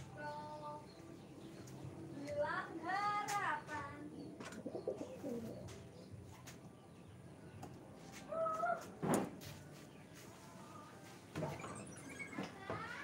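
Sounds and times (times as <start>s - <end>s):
higher pigeon call: 4.1s - 5.8s
pigeons cooing: 4.1s - 5.8s.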